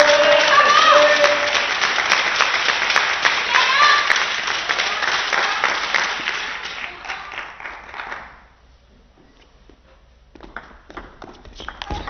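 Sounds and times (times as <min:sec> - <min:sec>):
spectators applauding: 0:00.0 - 0:08.4.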